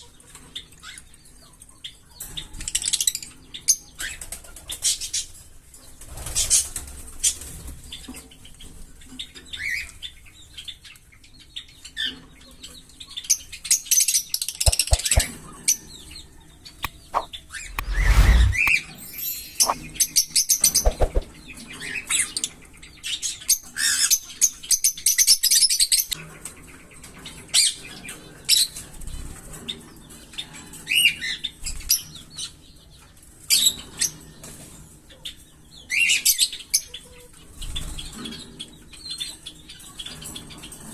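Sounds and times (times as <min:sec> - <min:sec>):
wings flapping: 0:14.7 - 0:15.3, 0:19.5 - 0:19.8, 0:20.7 - 0:21.3.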